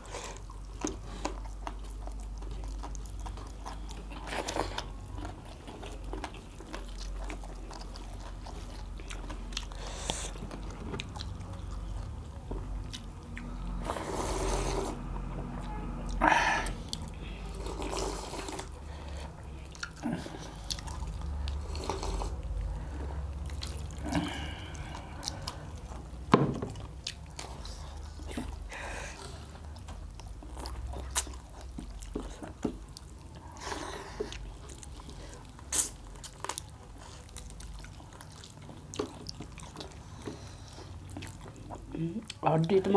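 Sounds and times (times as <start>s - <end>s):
wet chewing: 0.0s - 42.9s.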